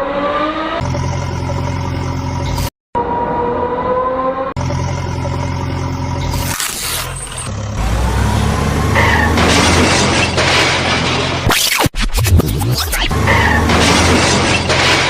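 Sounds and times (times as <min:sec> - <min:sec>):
truck engine revving: 0:04.3 - 0:11.5, 0:13.0 - 0:15.0.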